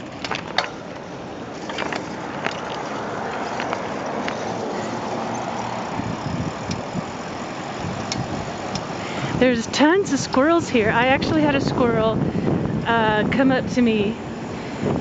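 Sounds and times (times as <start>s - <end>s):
road noise: 0.0s - 15.0s
wind on microphone: 5.9s - 7.2s, 7.8s - 15.0s.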